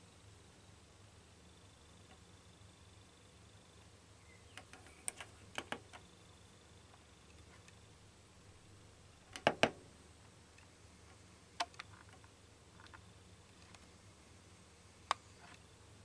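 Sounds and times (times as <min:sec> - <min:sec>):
faint low hum: 0:00.0 - 0:16.0
sharp clicks: 0:04.5 - 0:06.1, 0:11.6 - 0:13.8.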